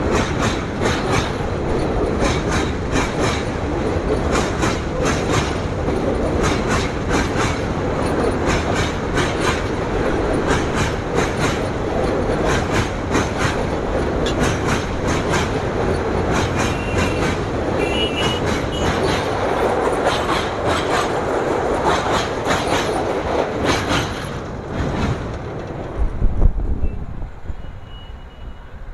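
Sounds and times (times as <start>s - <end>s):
train wheels clattering over rail joints: 0.0s - 26.4s
wheel squeal: 16.6s - 19.2s, 27.6s - 28.8s.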